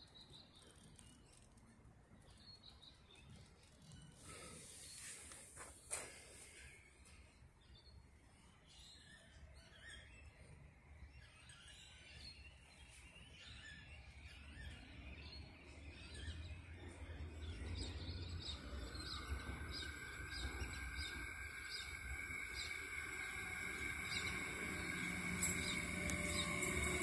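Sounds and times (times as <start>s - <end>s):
small birds chirping: 0.0s - 27.0s
low outdoor rumble: 16.0s - 27.0s
approaching train hum: 16.4s - 27.0s.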